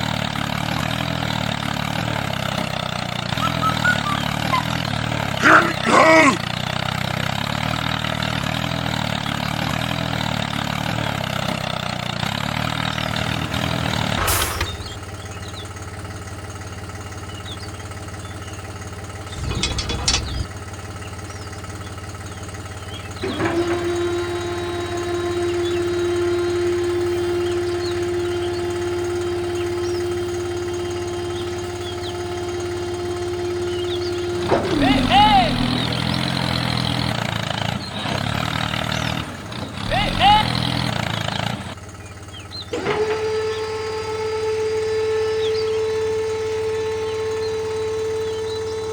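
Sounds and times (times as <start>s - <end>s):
small motor running: 19.2s - 20.5s, 22.8s - 48.9s
steady whine: 19.3s - 20.5s.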